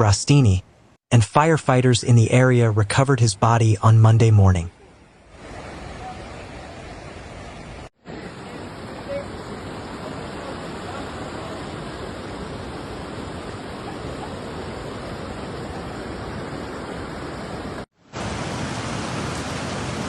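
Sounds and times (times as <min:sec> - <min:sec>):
rushing floodwater: 0:04.7 - 0:20.0.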